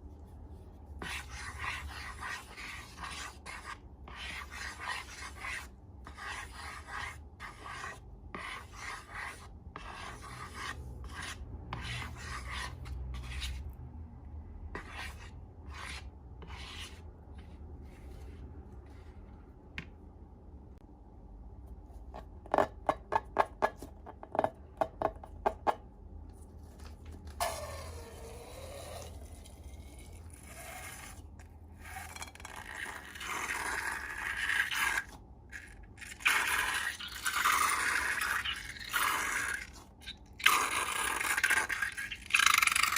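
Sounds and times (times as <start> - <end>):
rubbing and scraping strokes: 0.0 - 13.7, 14.7 - 19.4.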